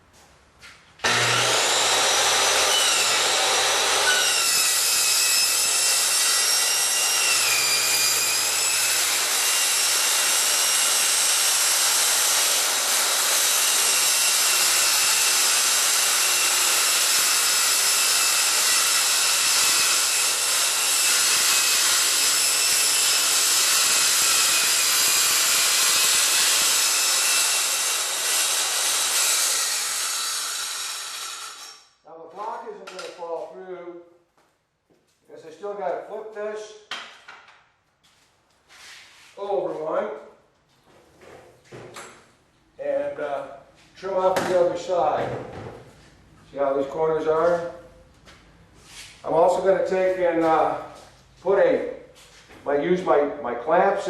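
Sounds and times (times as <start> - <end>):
circular saw cutting steel: 1.0 - 31.9.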